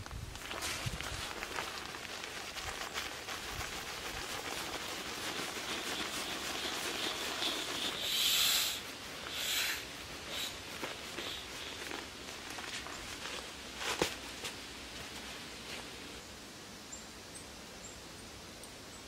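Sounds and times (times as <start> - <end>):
fabric rustling: 0.0 - 16.1
air hissing out of valve: 5.6 - 12.0.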